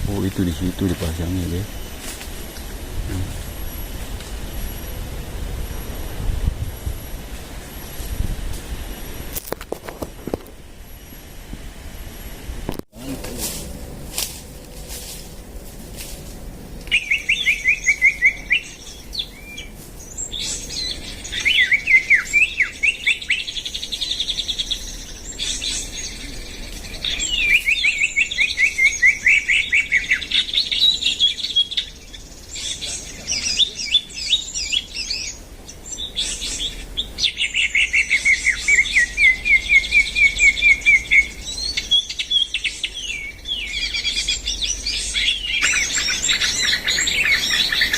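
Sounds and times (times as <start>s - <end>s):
songbird chirping trills: 16.8s - 47.9s.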